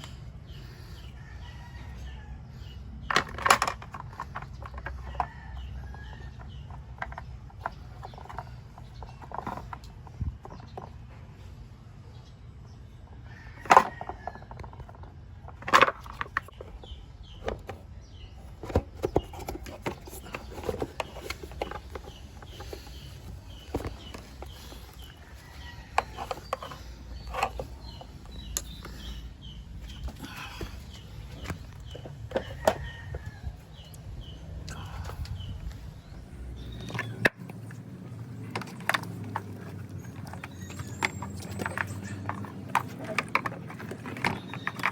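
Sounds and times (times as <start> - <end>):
tools and parts clicking: 3.1 - 11.0, 18.5 - 29.1, 38.4 - 44.9.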